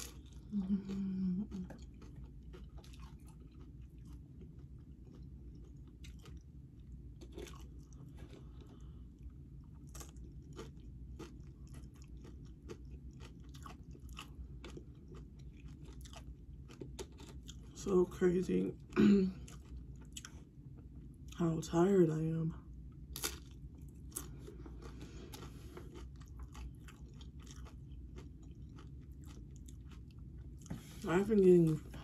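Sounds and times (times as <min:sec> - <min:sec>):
crunching tortilla chips: 0:00.0 - 0:00.6, 0:07.1 - 0:08.9, 0:09.7 - 0:17.9, 0:23.1 - 0:30.1
person humming: 0:00.5 - 0:01.7.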